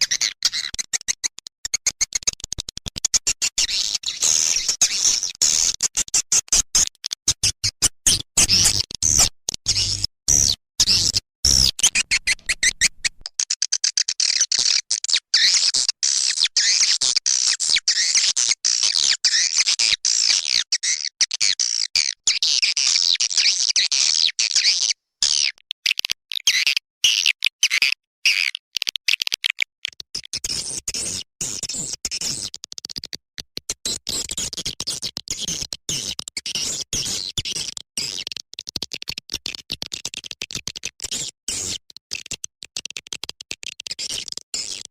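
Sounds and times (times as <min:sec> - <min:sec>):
swiftlets twittering and chirping: 0:08.2 - 0:15.6.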